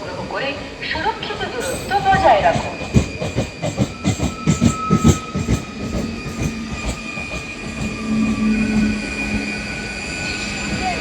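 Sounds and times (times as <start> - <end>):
low hum of train: 0.0 - 11.0
train wheels clacking over rail joints: 1.6 - 8.9
high-pitched wheel squeal: 1.6 - 11.0.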